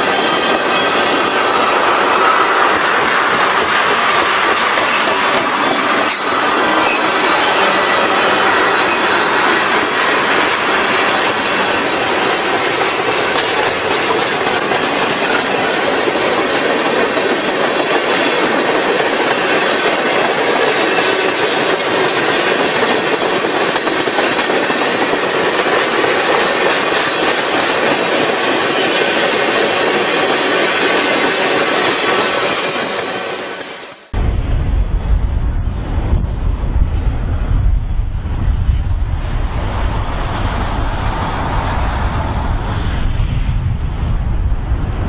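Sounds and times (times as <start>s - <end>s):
freight train wheels clattering on rails: 0.0s - 34.1s.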